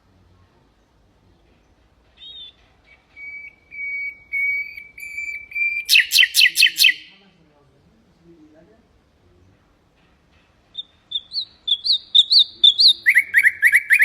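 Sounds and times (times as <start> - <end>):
nightingale singing: 0.8 - 7.2, 10.7 - 14.0.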